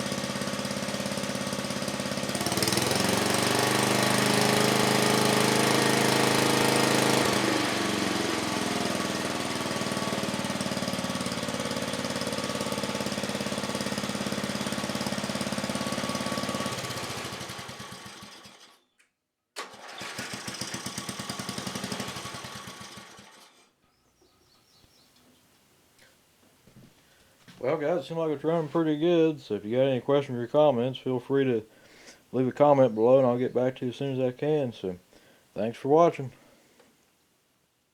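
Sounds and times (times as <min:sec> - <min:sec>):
small engine running: 0:00.0 - 0:18.8, 0:19.6 - 0:23.7.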